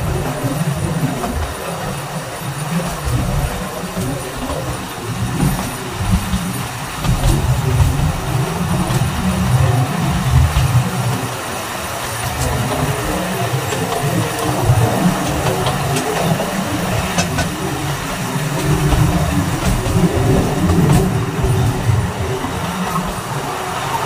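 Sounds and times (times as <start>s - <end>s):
train wheels rumbling on rail: 0.0s - 24.0s
sharp track clicks: 12.0s - 24.0s.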